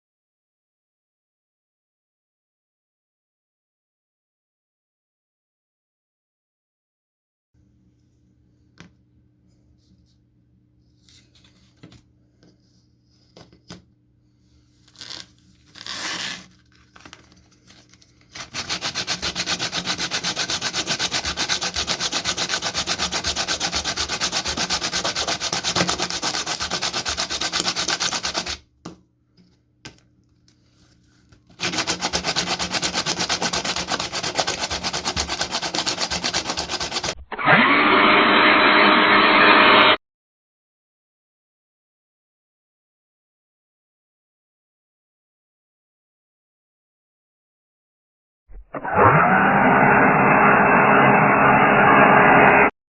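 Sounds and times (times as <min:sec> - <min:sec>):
muffled humming with steady tones: 0:07.6 - 0:18.6
sanding a knife blade: 0:18.4 - 0:28.6, 0:31.6 - 0:37.2.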